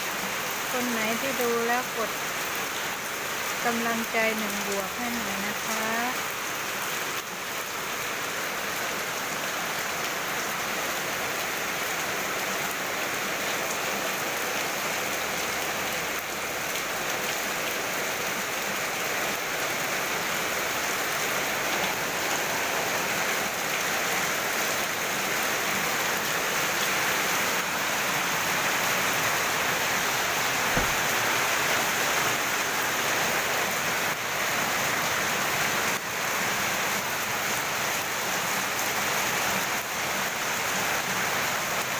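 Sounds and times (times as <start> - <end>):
heavy rain pouring: 0.0 - 41.9
low thump: 30.7 - 31.2.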